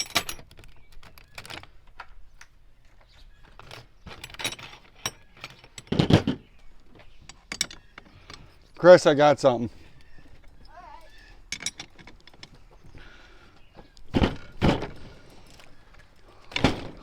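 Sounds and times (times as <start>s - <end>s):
metal tools clinking in toolbox: 0.0s - 1.7s, 3.5s - 6.4s, 7.0s - 8.8s, 10.1s - 12.7s.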